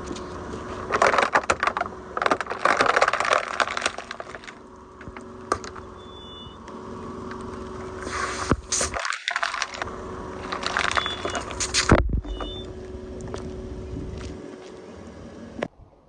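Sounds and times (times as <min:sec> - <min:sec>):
tyre crushing plastic containers: 0:00.7 - 0:05.7, 0:08.0 - 0:12.0
sharp click: 0:11.5 - 0:12.0.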